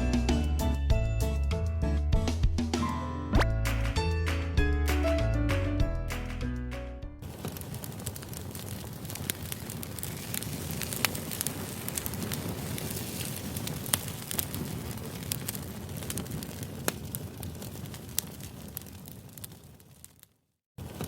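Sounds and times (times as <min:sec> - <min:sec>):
burning wood popping: 0:07.2 - 0:21.0
campfire flames rumbling: 0:07.2 - 0:21.0.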